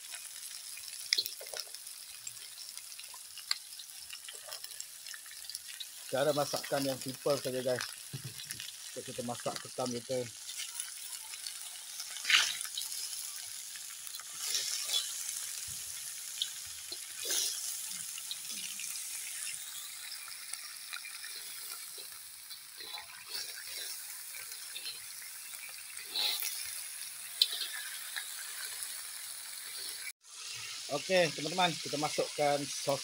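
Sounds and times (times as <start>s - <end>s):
crabs sizzling in a wok: 0.0s - 33.0s
shells clattering against a pan: 14.1s - 15.5s.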